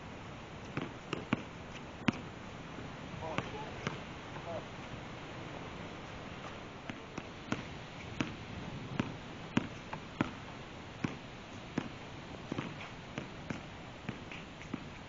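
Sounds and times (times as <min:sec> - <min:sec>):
steady background hiss: 0:00.0 - 0:15.0
basketball bouncing on hard court: 0:00.7 - 0:02.3, 0:03.3 - 0:04.0, 0:06.4 - 0:14.9.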